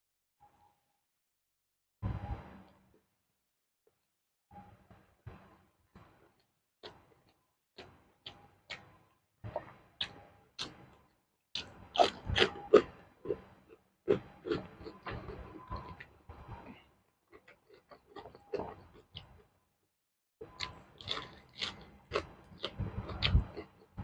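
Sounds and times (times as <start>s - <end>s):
crunching raw vegetables: 11.6s - 13.4s, 20.5s - 23.8s.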